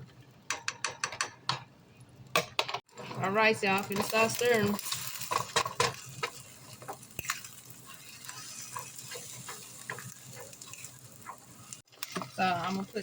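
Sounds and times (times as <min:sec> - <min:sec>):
eggs sizzling in frying pan: 0:02.8 - 0:13.0
utensil scraping and tapping pan: 0:03.8 - 0:13.0.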